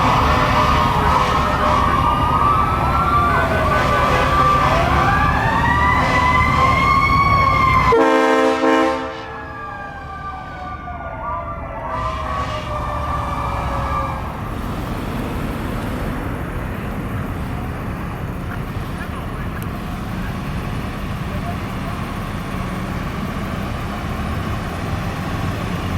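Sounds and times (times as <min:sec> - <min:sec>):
fire truck sirens wailing: 0:00.0 - 0:25.9
street noise: 0:00.0 - 0:25.9
short horn blast: 0:07.9 - 0:09.4.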